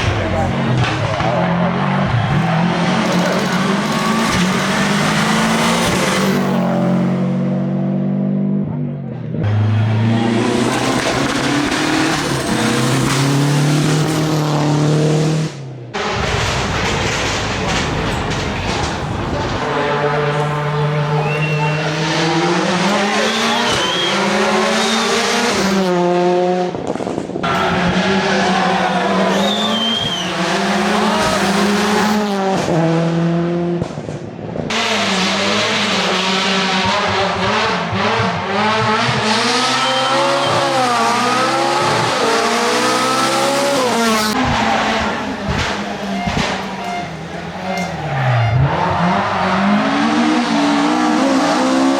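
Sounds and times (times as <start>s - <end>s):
rally car engines revving: 0.0s - 51.9s
tyre squeal: 21.1s - 22.2s, 23.0s - 25.2s, 27.5s - 32.0s, 39.6s - 40.8s, 44.5s - 50.0s.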